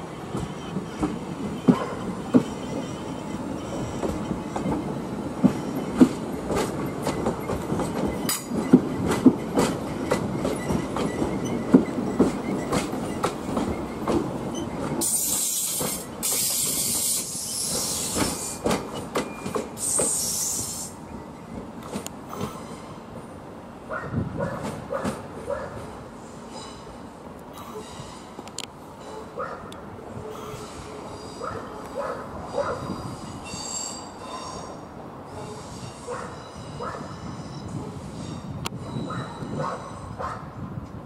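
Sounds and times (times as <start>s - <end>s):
train wheels clunking over joints: 0.1s - 23.4s.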